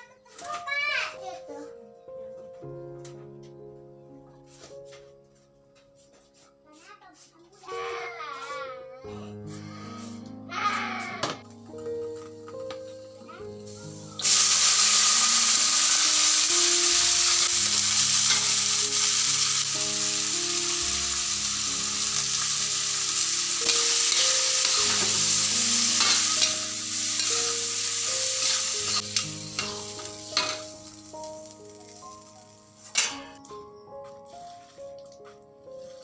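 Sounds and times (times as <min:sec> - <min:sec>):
soft background music: 0:00.0 - 0:36.0
food sizzling in hot oil: 0:13.2 - 0:33.4.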